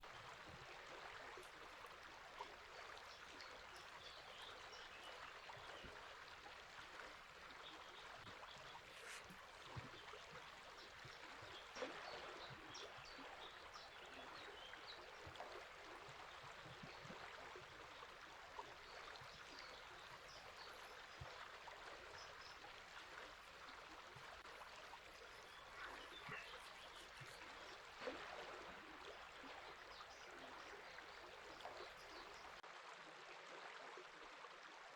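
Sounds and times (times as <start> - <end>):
river water running: 0.0 - 34.9
faint bird chirps: 7.6 - 15.3, 24.2 - 28.2.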